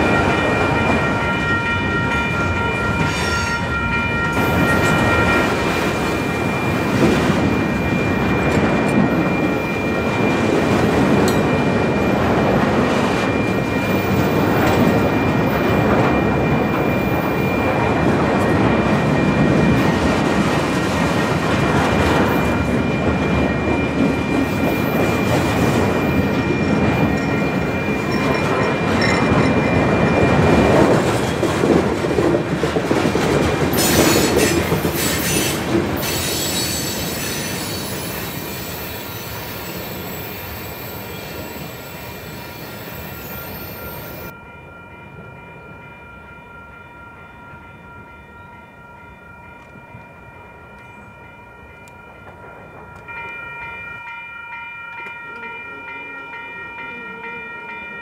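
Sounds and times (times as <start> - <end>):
clickety-clack over rail joints: 0.0 - 40.2
train wheels rumbling on rail: 0.0 - 44.4.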